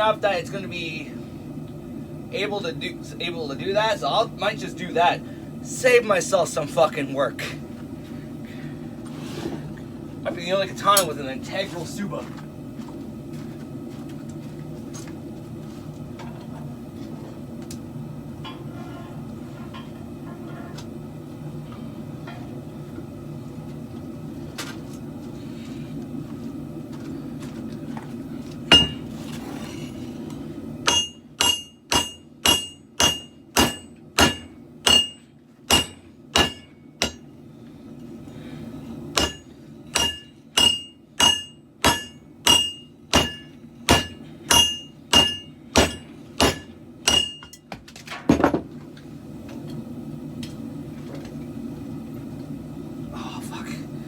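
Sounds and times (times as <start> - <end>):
hammer striking blade on anvil: 28.7 - 29.0, 30.9 - 37.2, 39.2 - 47.6.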